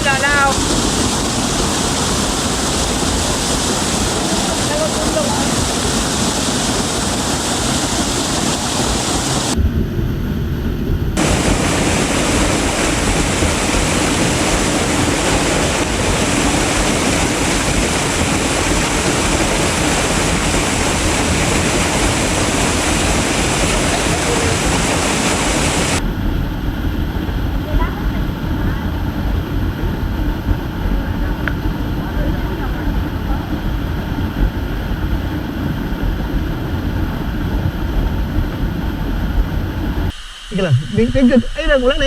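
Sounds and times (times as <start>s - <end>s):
waterfall rushing: 0.0s - 9.6s, 11.2s - 26.0s.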